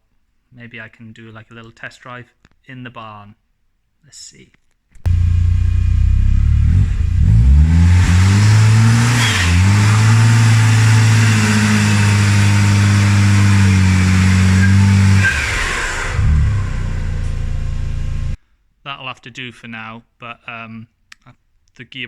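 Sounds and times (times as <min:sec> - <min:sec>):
van engine accelerating: 0:05.0 - 0:18.4.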